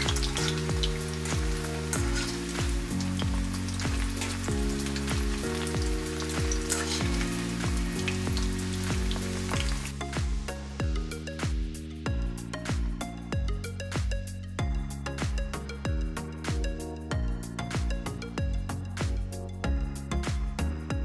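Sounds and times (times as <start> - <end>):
oil sizzling and crackling: 0.0 - 10.7
background music: 0.0 - 21.0.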